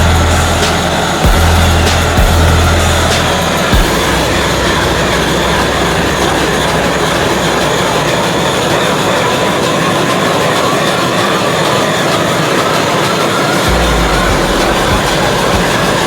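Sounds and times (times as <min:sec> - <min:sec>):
car engine running: 0:00.0 - 0:10.8, 0:13.6 - 0:16.0
faint rising tone: 0:13.7 - 0:16.0.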